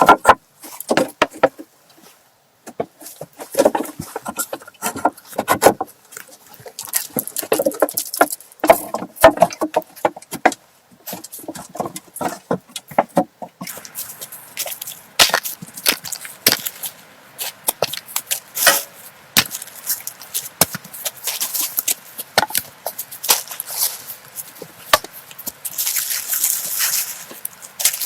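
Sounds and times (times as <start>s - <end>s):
wood knocks and cracks: 0.0s - 1.7s, 2.7s - 5.9s, 6.6s - 13.7s
rustling: 0.0s - 10.2s, 11.0s - 28.0s.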